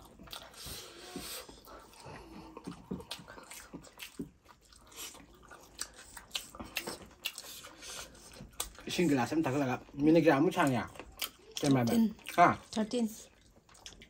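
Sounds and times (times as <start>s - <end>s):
chewing and crunching food: 0.0s - 14.0s.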